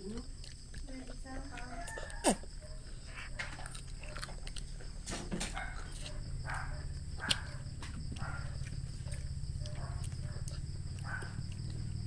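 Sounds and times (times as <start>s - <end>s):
child chewing cucumber: 0.0s - 12.0s
steady low hum: 0.0s - 12.0s
sharp bite clicks: 7.2s - 11.9s.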